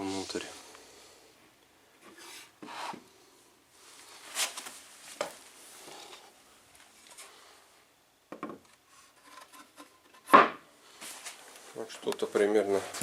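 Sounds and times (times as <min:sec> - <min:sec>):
wooden knocks: 0:08.3 - 0:08.7.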